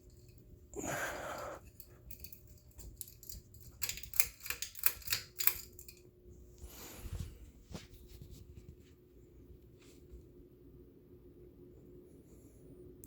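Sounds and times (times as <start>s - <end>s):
ceiling fan hum: 0.0s - 13.0s
fan clicks and rattles: 1.7s - 6.1s.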